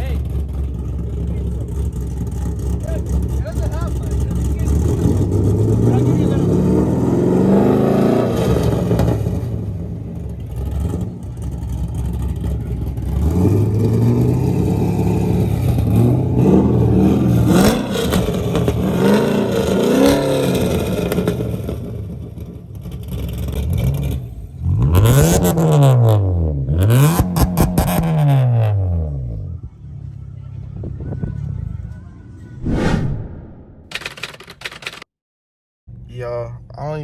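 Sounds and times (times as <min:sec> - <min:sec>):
car engine revving: 0:00.0 - 0:29.4.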